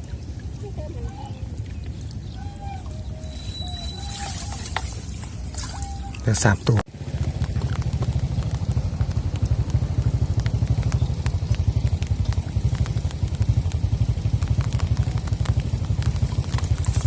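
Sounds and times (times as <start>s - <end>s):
small engine chugging: 7.0s - 17.0s.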